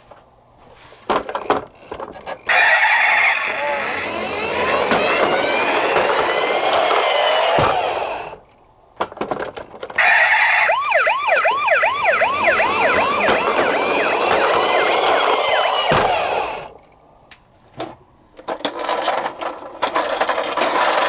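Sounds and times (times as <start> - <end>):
sirens wailing: 2.5 - 8.4, 10.0 - 16.7.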